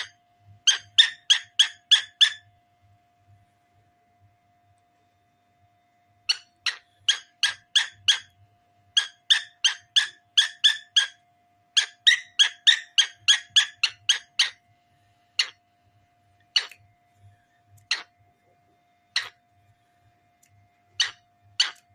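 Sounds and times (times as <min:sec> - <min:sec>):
faint steady tone: 0:00.0 - 0:01.3, 0:02.3 - 0:07.4, 0:14.4 - 0:21.9
cockatiel chirping: 0:00.0 - 0:02.4, 0:06.3 - 0:08.3, 0:08.9 - 0:11.2, 0:11.8 - 0:14.6, 0:15.4 - 0:15.6, 0:16.5 - 0:16.8, 0:17.8 - 0:18.1, 0:19.1 - 0:19.4, 0:21.0 - 0:21.9.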